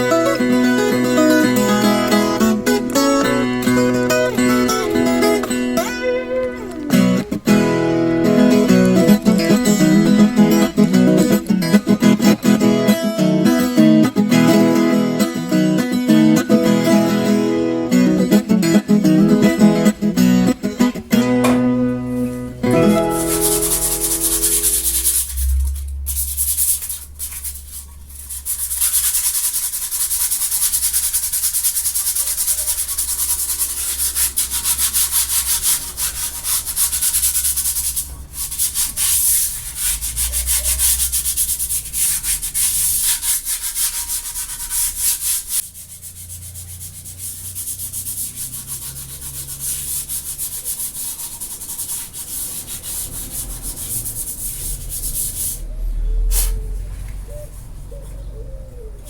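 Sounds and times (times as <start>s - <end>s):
sanding rasp: 0.0s - 6.0s, 7.3s - 12.2s, 22.7s - 55.7s.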